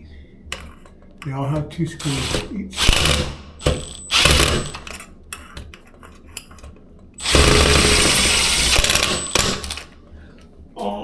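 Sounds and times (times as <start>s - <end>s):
cordless drill running: 2.0s - 4.9s, 7.2s - 9.9s.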